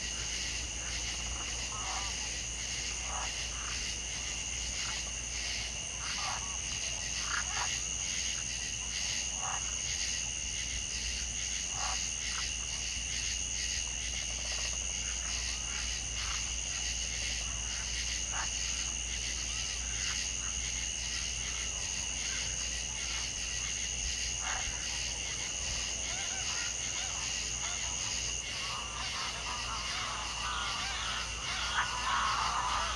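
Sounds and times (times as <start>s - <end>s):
frogs calling in pulsing trills: 0.0s - 32.9s
short lower frog calls: 24.4s - 32.9s.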